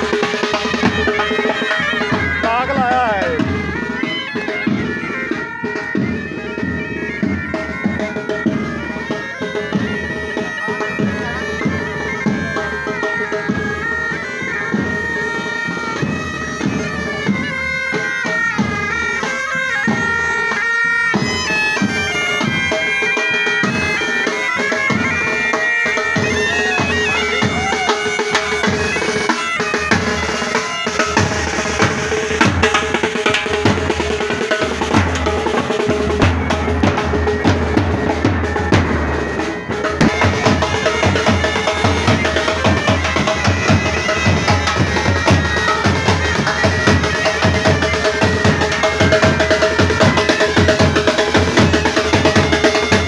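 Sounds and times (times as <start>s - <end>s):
bagpipes playing melody: 0.0s - 53.0s
snare and bass drums: 26.2s - 53.0s.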